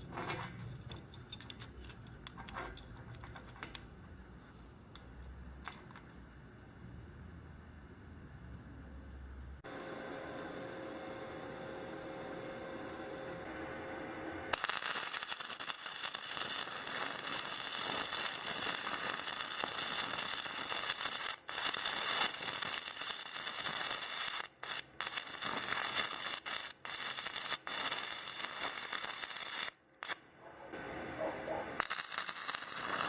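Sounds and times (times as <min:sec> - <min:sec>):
welding arc crackling and sizzling: 0:11.2 - 0:30.2, 0:31.7 - 0:33.0.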